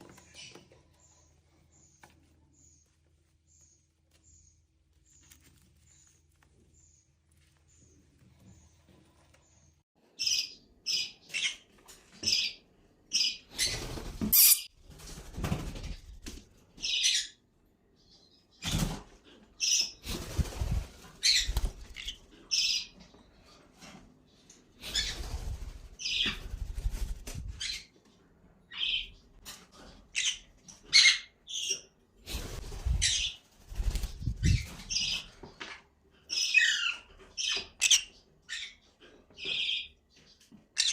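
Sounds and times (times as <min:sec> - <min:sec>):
parrot chirping and squawking: 0:13.1 - 0:14.7, 0:36.3 - 0:39.9
wings flapping: 0:20.0 - 0:22.2, 0:24.8 - 0:27.7, 0:32.2 - 0:35.2.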